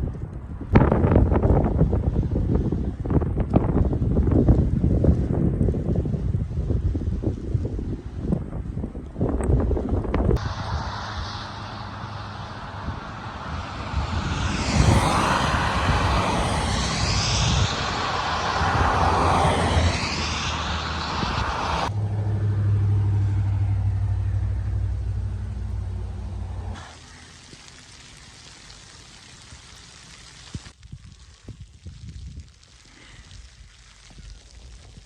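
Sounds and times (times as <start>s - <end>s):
road vehicles passing: 10.3s - 27.0s
steady low hum: 10.4s - 26.8s.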